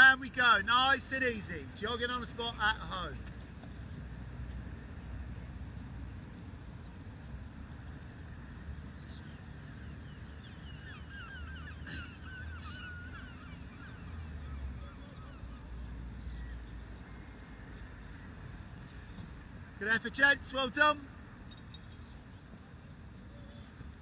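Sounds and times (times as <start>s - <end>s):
birds chattering: 0.0s - 4.1s.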